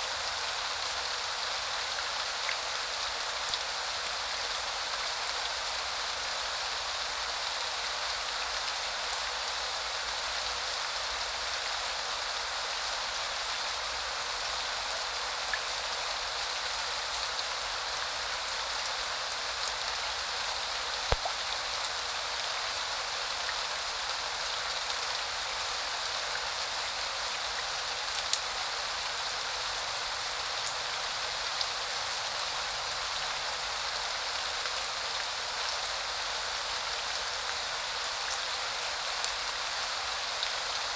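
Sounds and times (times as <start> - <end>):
steady rain hiss: 0.0 - 40.9
single raindrops striking: 21.1 - 21.4.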